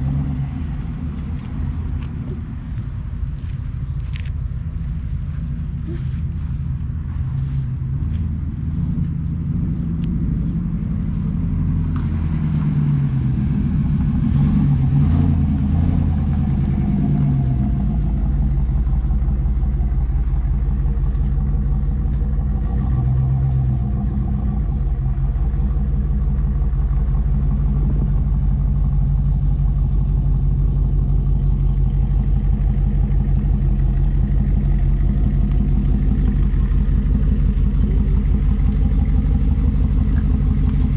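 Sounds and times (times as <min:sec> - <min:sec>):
car engine running: 0:00.0 - 0:40.9.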